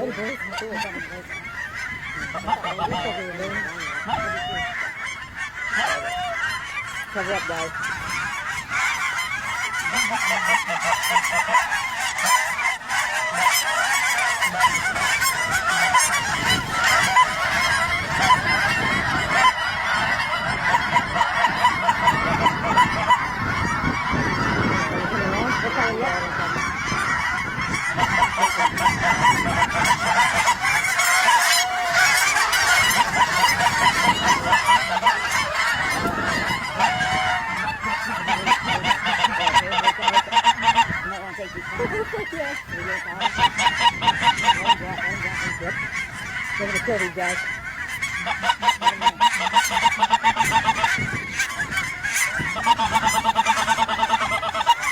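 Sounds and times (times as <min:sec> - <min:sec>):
flock of geese honking: 0:00.0 - 0:54.9.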